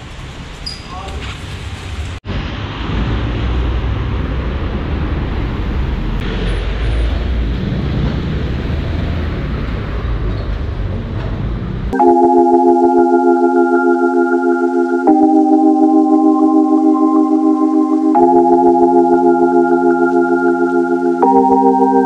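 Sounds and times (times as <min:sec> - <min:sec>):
road traffic rumble: 0:00.0 - 0:12.0
electronic organ music: 0:12.0 - 0:22.0.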